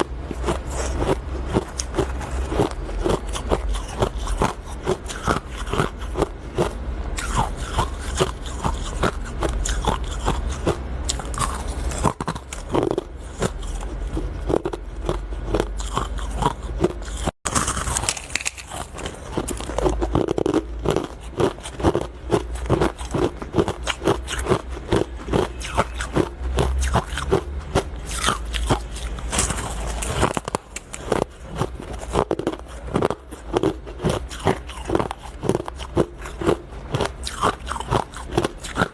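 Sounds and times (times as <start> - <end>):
ice being chewed: 0.0 - 38.9.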